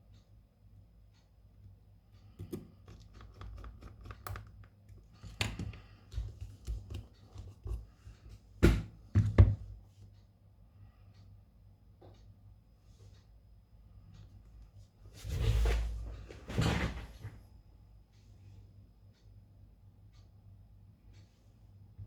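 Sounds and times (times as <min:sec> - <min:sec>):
small tools clicking and tapping: 0:02.2 - 0:07.9.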